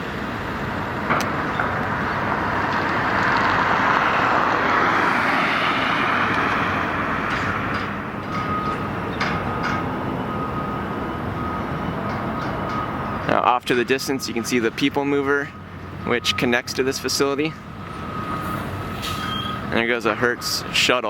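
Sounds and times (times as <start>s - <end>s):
road traffic noise: 0.0s - 21.0s
vehicle passing close: 0.7s - 13.2s.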